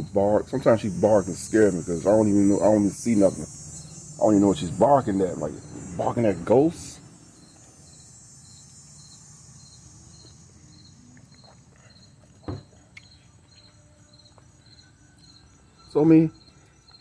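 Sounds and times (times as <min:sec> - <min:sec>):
cricket chirping: 0:00.0 - 0:17.0
high insect buzz: 0:00.0 - 0:17.0
dull thump: 0:12.4 - 0:12.7.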